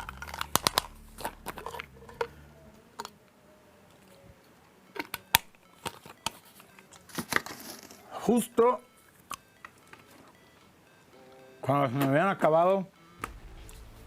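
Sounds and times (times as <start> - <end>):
low steady hum: 0.0 - 5.8, 12.9 - 14.0.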